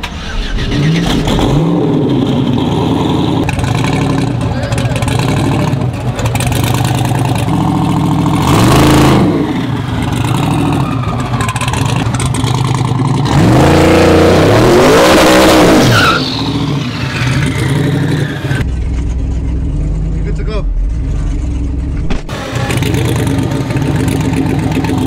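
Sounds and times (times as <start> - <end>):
truck engine revving: 0.0 - 25.0.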